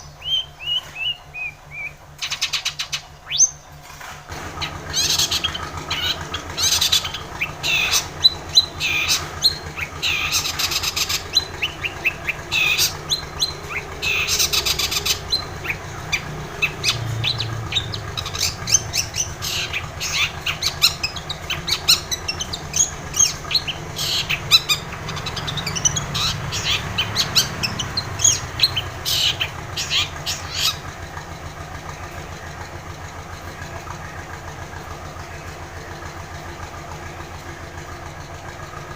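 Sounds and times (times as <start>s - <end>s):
bird chirping and trilling: 0.0s - 3.7s, 4.4s - 31.1s
steady low hum: 3.1s - 36.8s.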